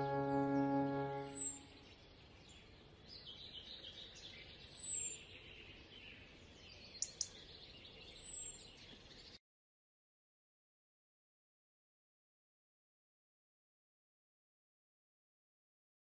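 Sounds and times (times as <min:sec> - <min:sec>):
faint high chirping: 0:03.4 - 0:09.4.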